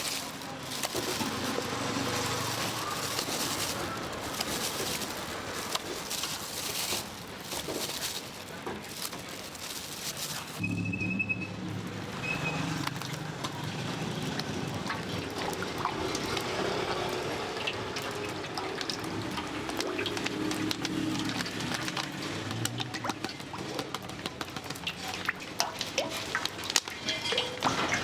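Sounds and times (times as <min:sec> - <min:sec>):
kitchen clicks and clatters: 0:00.0 - 0:10.6, 0:12.8 - 0:28.0
liquid sounds: 0:00.0 - 0:10.6, 0:12.6 - 0:28.0.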